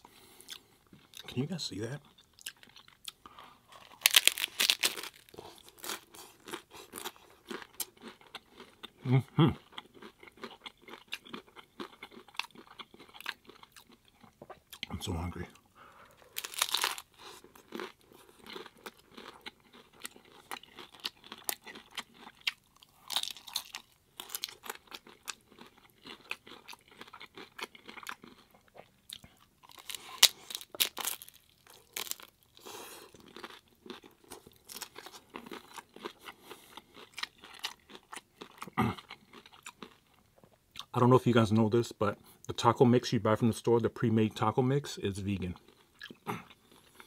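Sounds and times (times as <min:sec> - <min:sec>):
crunching of tacos being chewed: 0:00.0 - 0:15.2, 0:15.8 - 0:40.9, 0:45.5 - 0:47.0
cracking bites: 0:03.8 - 0:07.1, 0:16.3 - 0:28.2.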